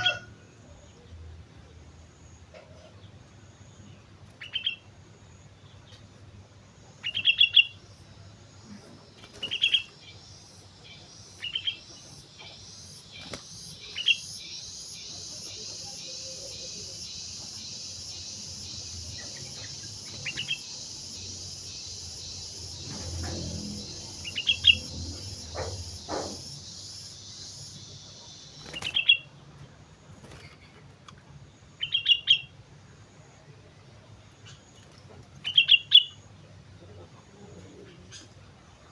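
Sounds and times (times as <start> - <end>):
bird calling: 8.6 - 29.3.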